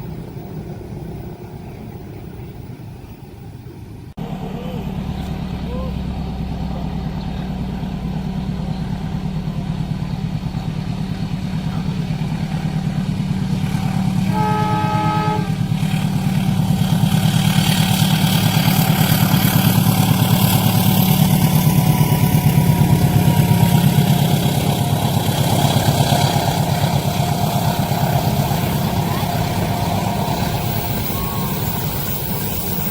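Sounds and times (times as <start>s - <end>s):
diesel train engine rumble: 0.0s - 32.9s
train wheels on rails: 0.0s - 32.9s
train horn blast: 13.6s - 16.3s, 21.6s - 32.2s.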